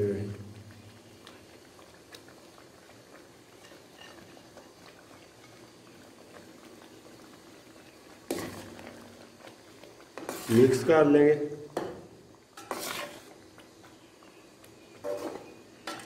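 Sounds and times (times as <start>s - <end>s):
halwa bubbling in a pan: 0.0s - 16.0s
spoon scraping a pan: 3.5s - 4.8s, 10.2s - 10.8s, 12.6s - 13.4s, 15.0s - 16.0s.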